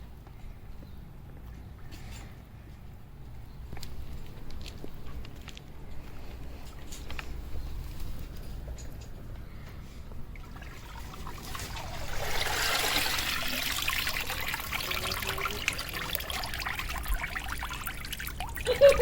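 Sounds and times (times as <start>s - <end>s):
water trickling and splashing: 10.2s - 19.0s.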